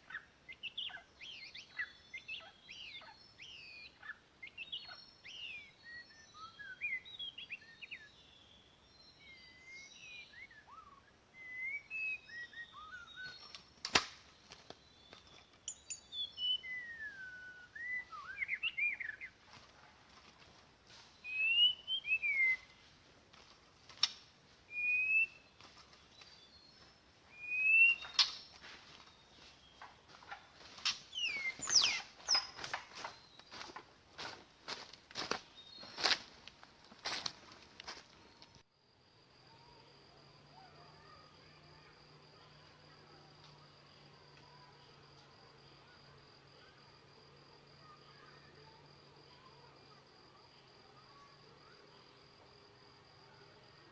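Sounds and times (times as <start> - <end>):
bird singing whistled phrases: 0.1 - 13.6, 14.9 - 19.3, 21.2 - 22.8, 24.7 - 25.5, 27.3 - 28.5, 30.8 - 33.6.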